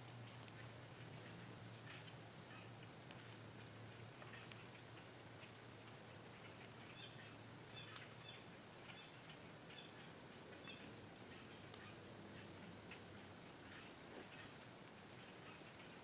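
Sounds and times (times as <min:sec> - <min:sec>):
soft ticks: 0:00.1 - 0:07.1, 0:07.8 - 0:08.1, 0:11.6 - 0:11.9.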